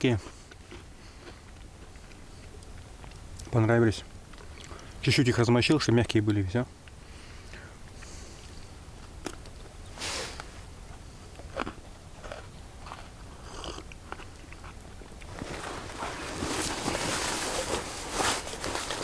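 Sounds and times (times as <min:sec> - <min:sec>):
person chewing soft wafers: 0:00.0 - 0:05.1, 0:06.8 - 0:19.0
small crunches and clicks: 0:06.2 - 0:09.8, 0:11.3 - 0:19.0
rustling: 0:15.2 - 0:19.0.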